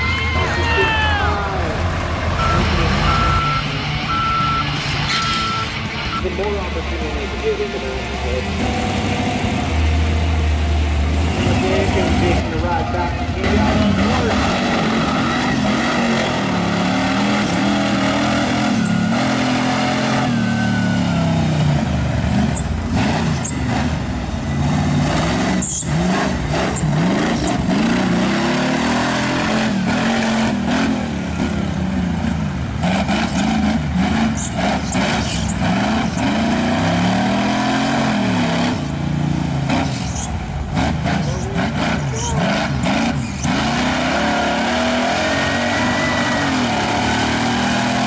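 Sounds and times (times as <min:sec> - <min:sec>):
engine knocks: 0:00.0 - 0:15.2
buggy engine revving hard: 0:00.0 - 0:48.0.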